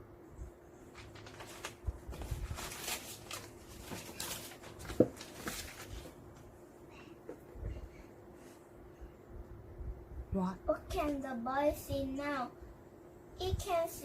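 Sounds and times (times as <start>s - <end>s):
faint steady hum: 0.0s - 14.0s
rustling and light knocks: 3.8s - 6.2s.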